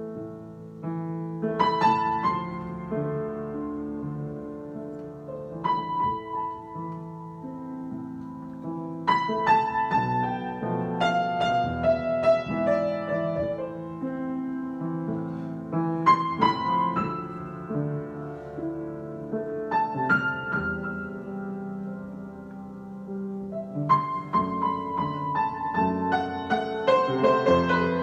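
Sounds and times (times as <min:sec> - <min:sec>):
solo piano improvisation: 0:00.0 - 0:28.0.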